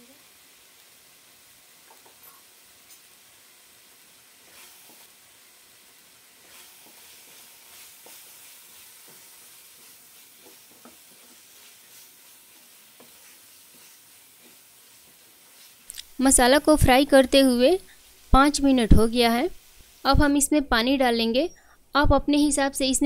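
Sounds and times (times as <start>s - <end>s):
paste sizzling in oil: 0.0s - 21.6s
spatula scraping a pan: 4.4s - 5.1s, 6.4s - 15.9s.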